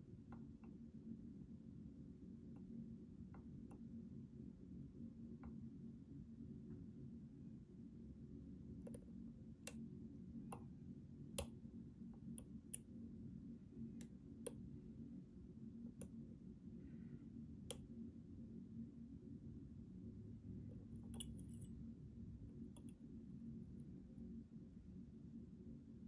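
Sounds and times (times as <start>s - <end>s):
steady low hum: 0.0s - 26.0s
lock pick clicks: 21.2s - 21.7s.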